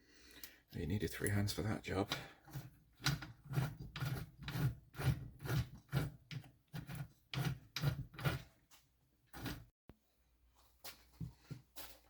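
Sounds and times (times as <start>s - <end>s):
rhythmic rasping hand tool strokes: 2.3s - 8.6s.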